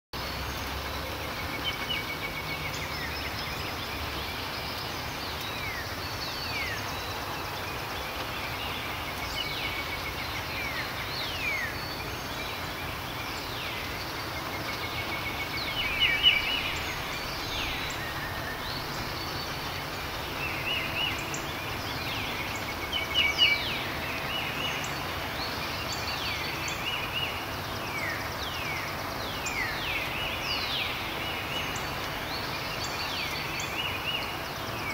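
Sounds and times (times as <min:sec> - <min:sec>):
steady hiss: 0:00.2 - 0:34.9
birds whistling and trilling: 0:09.2 - 0:34.9.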